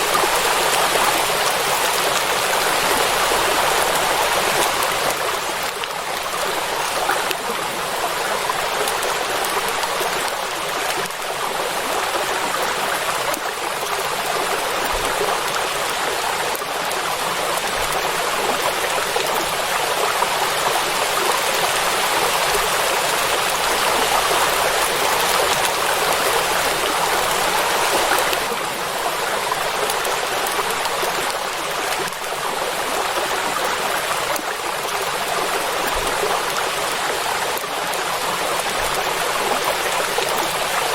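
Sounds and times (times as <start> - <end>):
heavy rain on water: 0.0 - 40.9.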